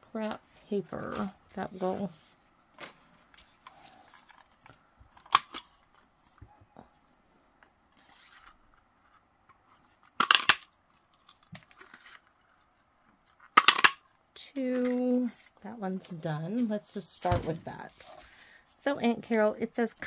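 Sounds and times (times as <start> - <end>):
faint paper rustling: 0.5 - 10.1, 10.8 - 13.4.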